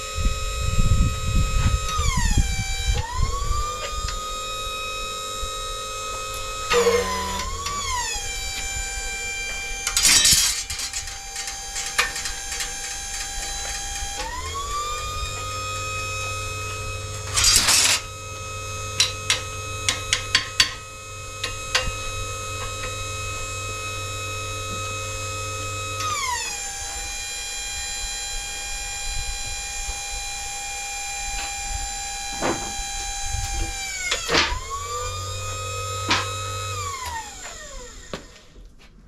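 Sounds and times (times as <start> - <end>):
shop machine whine: 0.0 - 38.8
sharp metal clicks: 9.8 - 14.4.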